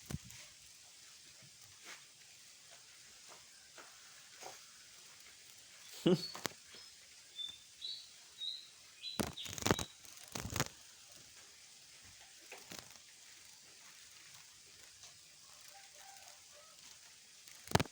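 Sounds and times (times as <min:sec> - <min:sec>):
bird chirping: 0:05.8 - 0:10.7.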